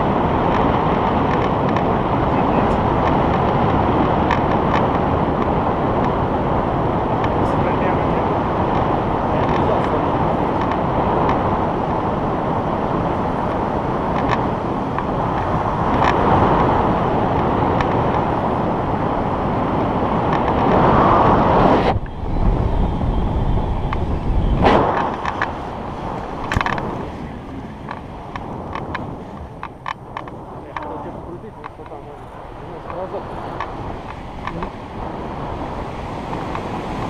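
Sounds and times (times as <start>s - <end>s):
wind rushing over microphone: 0.0s - 37.0s
low rumble: 20.6s - 35.9s.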